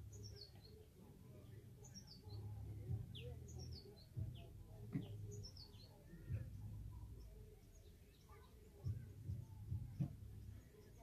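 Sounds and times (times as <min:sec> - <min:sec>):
low outdoor rumble: 0:01.2 - 0:11.0
soft thumps: 0:08.8 - 0:10.4.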